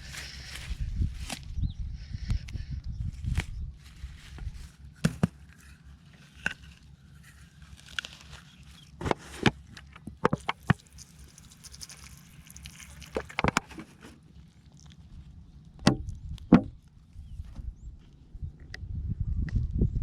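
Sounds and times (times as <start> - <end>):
sharp knocks and thuds: 5.0 - 5.4, 15.8 - 16.8.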